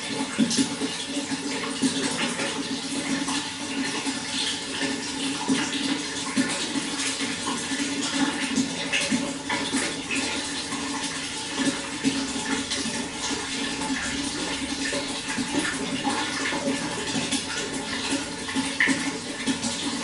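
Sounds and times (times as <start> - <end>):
running water splashing: 0.0 - 20.0.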